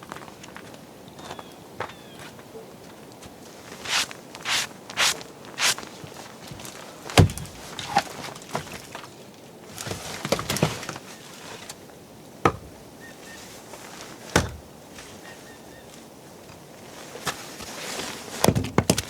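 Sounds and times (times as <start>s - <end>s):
knocks and thuds: 7.2s - 7.6s.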